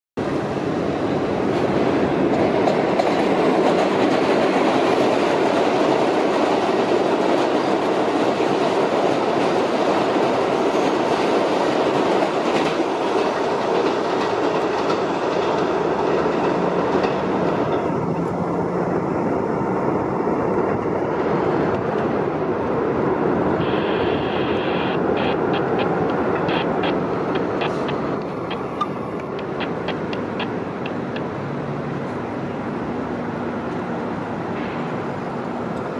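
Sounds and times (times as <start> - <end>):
subway train rumbling past: 0.2 - 35.9
high whine: 23.5 - 31.2.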